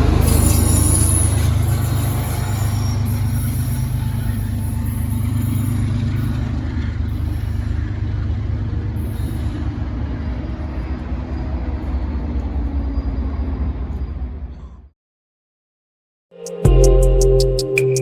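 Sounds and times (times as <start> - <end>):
train locomotive rumbling: 0.0 - 14.9.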